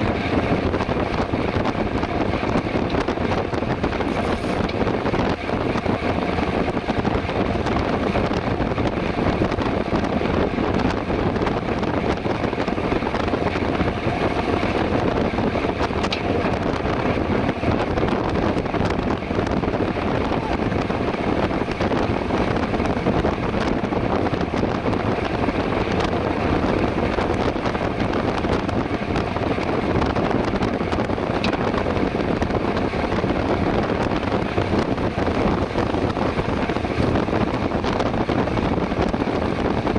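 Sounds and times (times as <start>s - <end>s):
tyre and road rumble: 0.0s - 39.9s
wind rushing over microphone: 0.0s - 39.9s.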